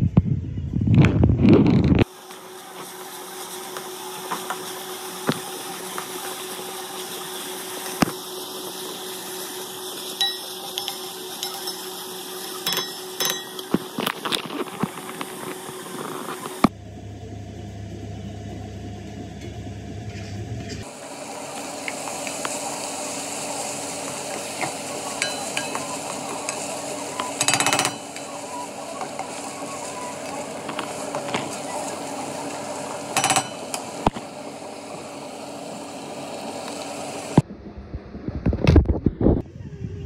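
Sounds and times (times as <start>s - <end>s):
vegetables sizzling in a pot: 2.0s - 16.7s, 20.8s - 37.4s
low hum: 12.8s - 22.6s, 33.4s - 40.0s.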